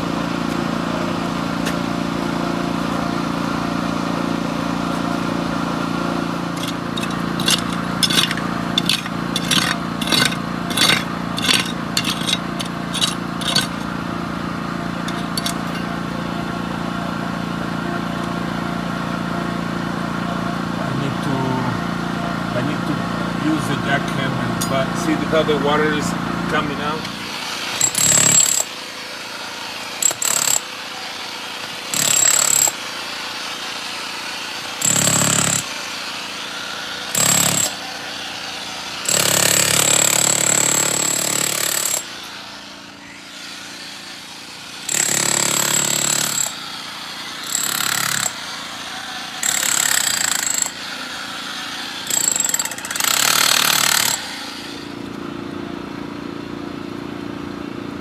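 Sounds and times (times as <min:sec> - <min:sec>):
engine-like hum: 0:00.0 - 0:28.7, 0:42.0 - 0:58.0
jackhammer: 0:00.0 - 0:55.1.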